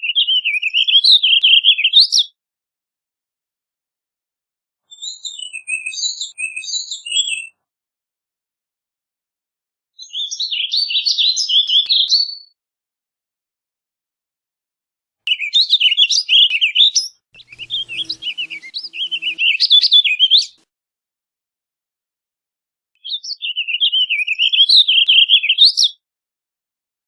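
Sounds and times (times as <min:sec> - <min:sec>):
bird singing warbled phrases: 0:00.0 - 0:02.4, 0:04.9 - 0:07.6, 0:10.0 - 0:12.6, 0:15.3 - 0:20.6, 0:23.0 - 0:26.0.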